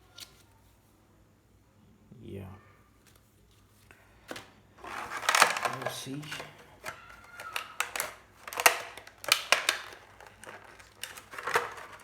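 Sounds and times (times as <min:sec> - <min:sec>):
cardboard and plastic rustling: 0:03.0 - 0:12.0.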